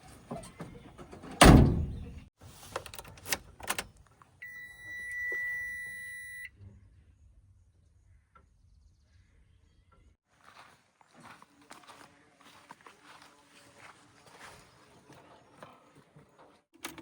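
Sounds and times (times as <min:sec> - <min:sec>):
heavy thump: 0:01.4 - 0:02.2.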